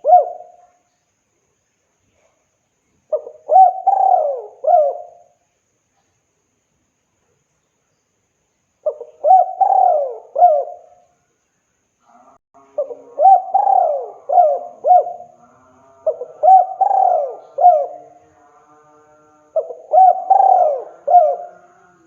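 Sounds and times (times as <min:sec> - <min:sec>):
dove cooing: 0:00.0 - 0:00.6, 0:03.1 - 0:05.4, 0:08.8 - 0:11.0, 0:12.8 - 0:15.4, 0:16.0 - 0:18.2, 0:19.5 - 0:22.0.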